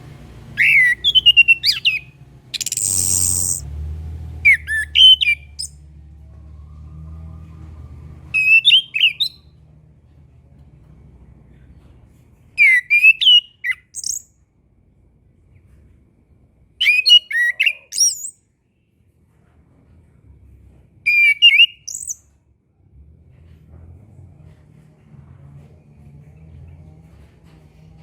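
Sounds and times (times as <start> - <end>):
faint low rumble: 0.0 - 12.6, 14.2 - 16.9, 18.4 - 21.1, 22.2 - 28.0
thrush singing: 0.1 - 3.7.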